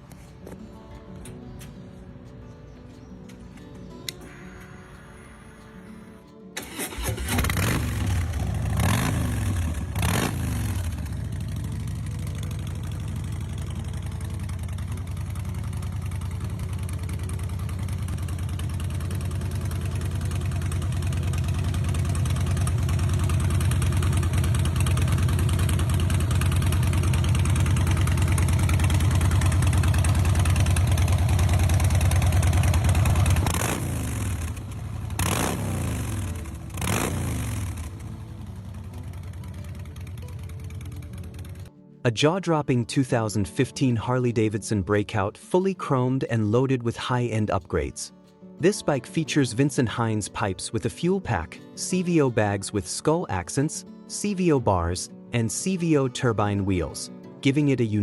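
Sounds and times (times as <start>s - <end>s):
motorcycle engine idling: 6.6s - 41.7s
motorcycle throttle blips: 6.6s - 41.7s.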